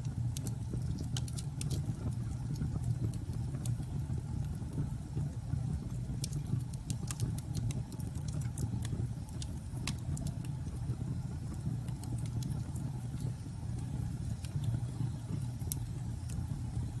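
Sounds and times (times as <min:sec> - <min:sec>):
fireplace crackling and popping: 0:00.0 - 0:17.0.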